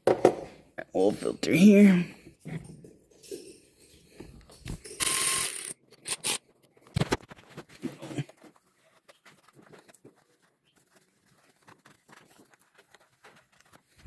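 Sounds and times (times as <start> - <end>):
metal tools clinking: 2.4 - 6.4.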